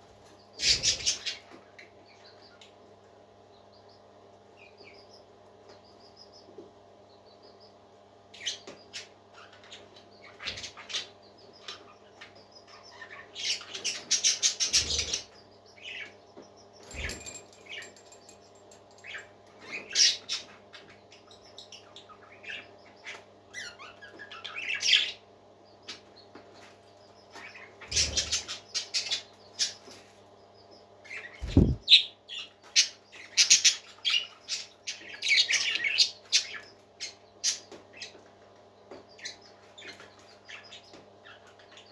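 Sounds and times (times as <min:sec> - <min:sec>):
parakeets chattering: 0:31.2 - 0:32.0.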